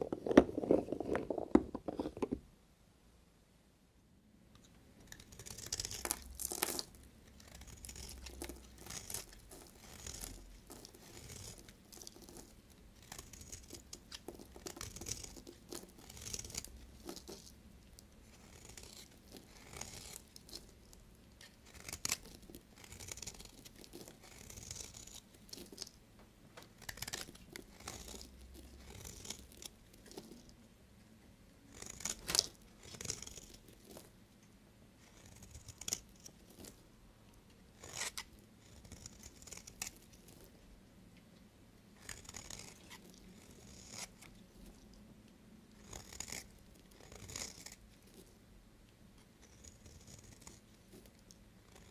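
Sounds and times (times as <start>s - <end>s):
knife scraping through soap: 5.1s - 17.5s, 18.3s - 20.8s, 21.4s - 26.0s, 26.8s - 30.4s, 31.7s - 34.1s, 35.0s - 36.8s, 37.8s - 40.5s, 42.0s - 44.8s, 45.8s - 48.3s, 49.4s - 51.1s.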